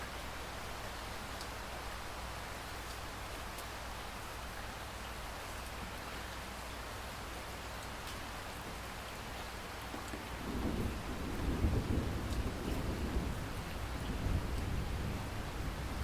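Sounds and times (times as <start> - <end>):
rain falling: 0.0 - 16.0
deep thunder rumble: 10.3 - 16.0.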